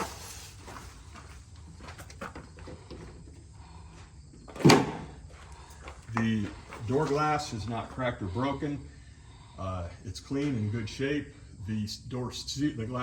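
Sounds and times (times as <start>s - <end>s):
footsteps: 0.0s - 4.6s, 5.2s - 8.1s
bus door clunking: 4.5s - 5.1s.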